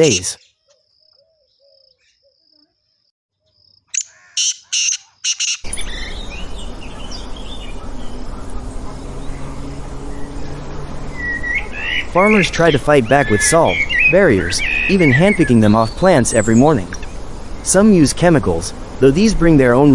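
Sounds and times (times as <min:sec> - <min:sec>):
loud short bird calls: 0:00.0 - 0:02.4, 0:03.9 - 0:06.2
birds chirping: 0:00.0 - 0:18.3
rural background noise: 0:00.0 - 0:19.9.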